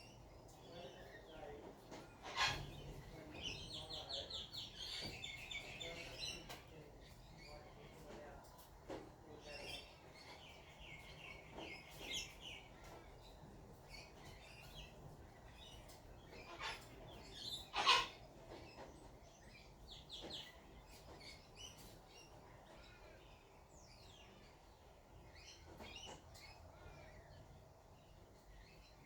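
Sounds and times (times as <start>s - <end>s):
birds chirping and calling: 0.0s - 8.3s, 8.9s - 29.0s.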